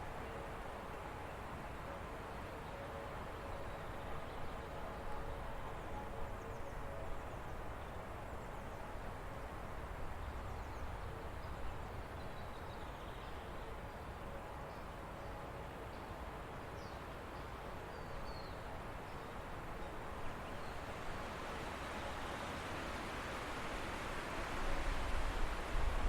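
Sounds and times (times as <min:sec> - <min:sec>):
stream running: 0:18.9 - 0:26.0.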